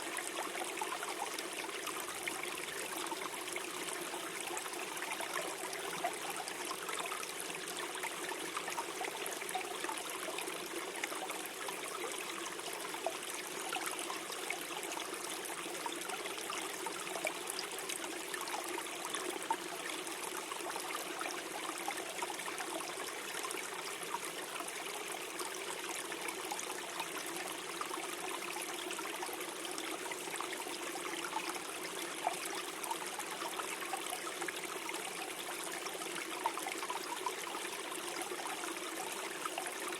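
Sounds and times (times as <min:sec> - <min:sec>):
stream gurgling over stones: 0:00.0 - 0:39.9.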